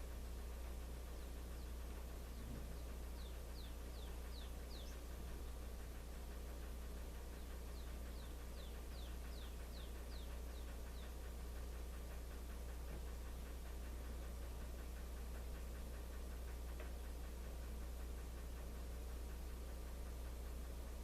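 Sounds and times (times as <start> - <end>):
faint ticking: 0.0 - 21.0
low hum: 0.0 - 21.0.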